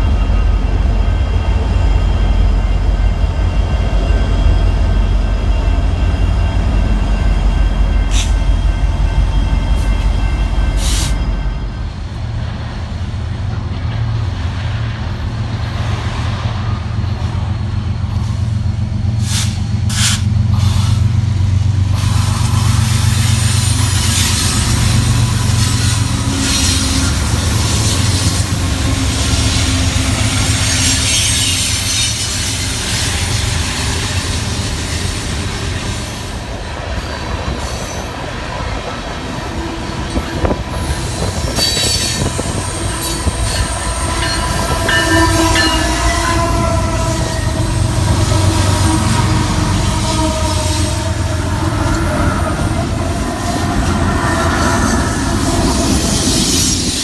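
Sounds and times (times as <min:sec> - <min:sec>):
freight train wheels rumbling: 0:00.0 - 0:57.0
high wheel squeal: 0:21.9 - 0:36.5, 0:40.1 - 0:57.0.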